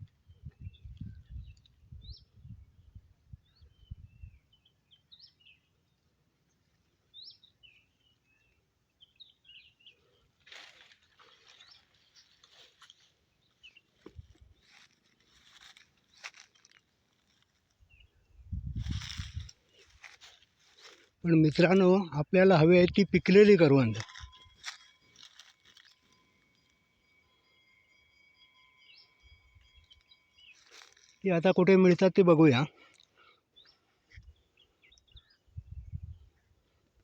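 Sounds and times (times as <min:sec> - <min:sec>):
small birds chirping: 0:00.1 - 0:37.0
footsteps crunching dry leaves: 0:10.4 - 0:17.9, 0:18.7 - 0:21.2, 0:23.1 - 0:26.6, 0:29.8 - 0:31.3.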